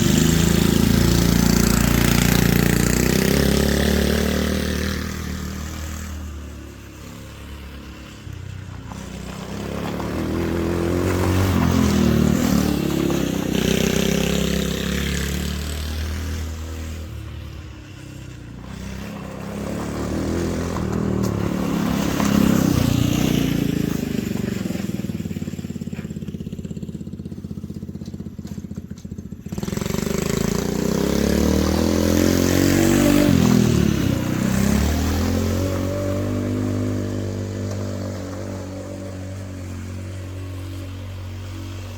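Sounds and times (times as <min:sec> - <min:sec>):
go-kart engine accelerating: 0:00.0 - 0:41.9.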